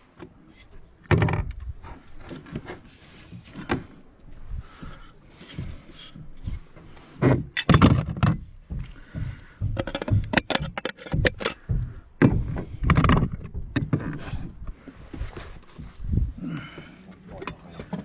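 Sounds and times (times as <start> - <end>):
knocks and clatter of roofing slates: 0.2 - 18.0
heavy thuds: 3.6 - 17.0.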